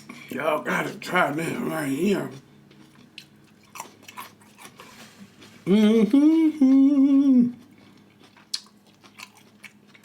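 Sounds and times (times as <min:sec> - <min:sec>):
man humming: 0:05.6 - 0:07.6.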